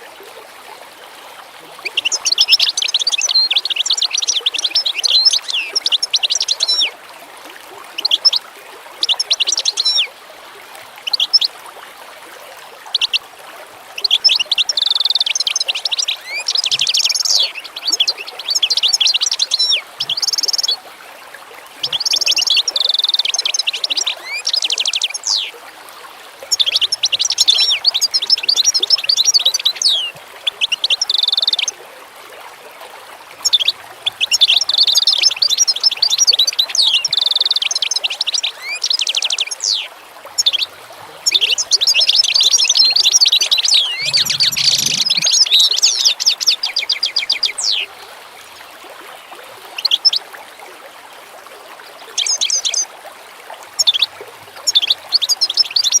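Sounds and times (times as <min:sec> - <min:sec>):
songbirds chirping and trilling: 0:41.3 - 0:47.9.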